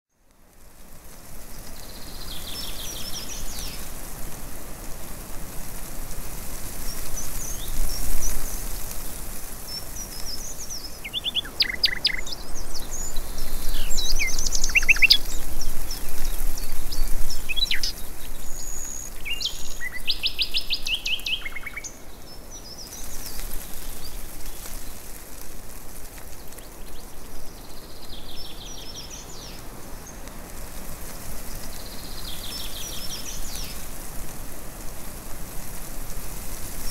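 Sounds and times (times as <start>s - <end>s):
steady hiss: 0.2s - 36.9s
birds chirping and calling: 9.7s - 22.0s.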